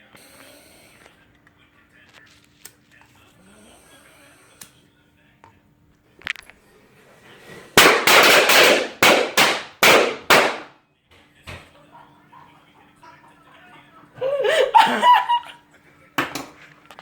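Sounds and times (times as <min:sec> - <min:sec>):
firecrackers banging indoors: 0:07.4 - 0:10.8.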